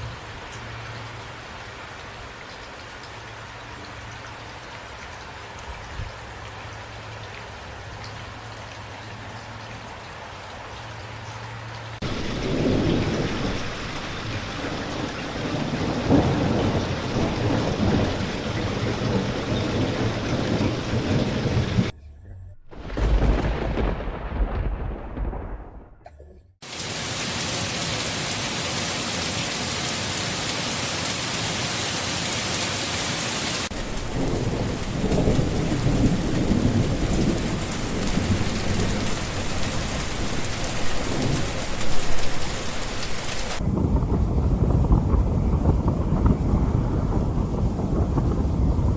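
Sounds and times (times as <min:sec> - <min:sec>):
heavy rain: 0:00.0 - 0:21.9, 0:22.7 - 0:26.0, 0:26.6 - 0:48.9
thunder rumbling: 0:12.0 - 0:26.1, 0:33.6 - 0:48.9.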